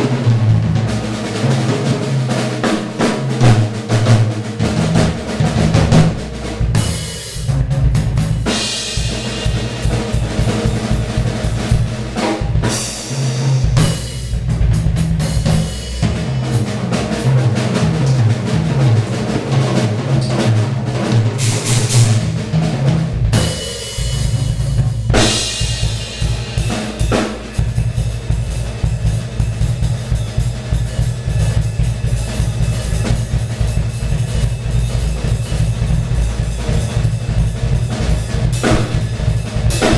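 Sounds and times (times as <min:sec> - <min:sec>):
bass drum and snare strokes: 0:00.0 - 0:39.9
cymbals crashing: 0:08.4 - 0:14.4, 0:21.3 - 0:22.4, 0:25.2 - 0:37.0, 0:38.5 - 0:39.9
tom hits: 0:38.6 - 0:39.9.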